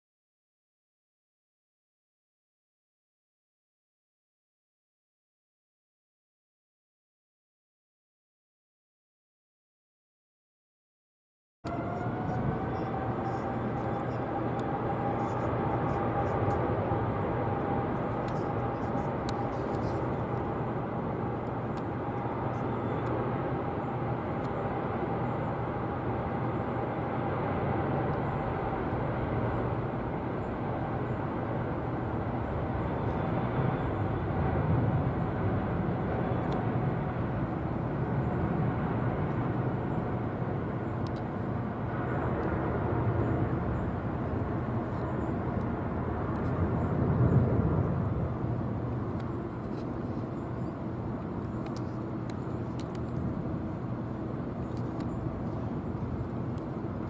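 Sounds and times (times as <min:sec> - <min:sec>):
jet engines rumbling: 0:11.7 - 0:57.0.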